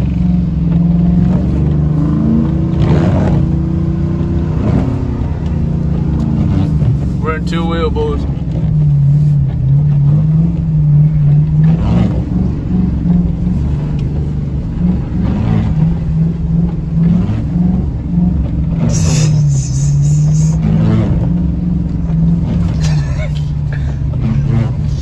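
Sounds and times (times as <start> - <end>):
vehicle engine running: 0.0 - 25.0
burst of hiss: 18.9 - 20.6.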